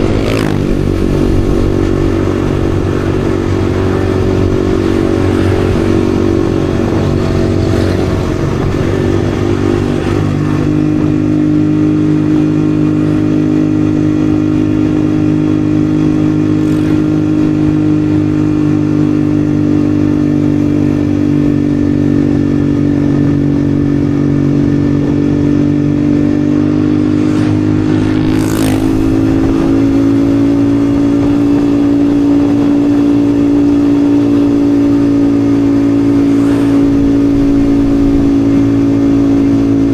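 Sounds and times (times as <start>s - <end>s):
whoosh: 0.0s - 10.7s, 36.0s - 39.5s
motorcycle engine cruising: 0.0s - 39.9s.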